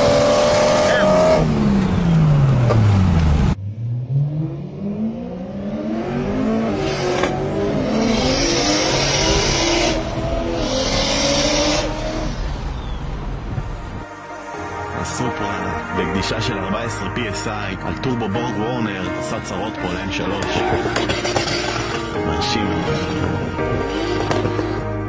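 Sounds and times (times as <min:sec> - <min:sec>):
car engine revving at full throttle: 0:00.0 - 0:13.6, 0:20.6 - 0:24.9.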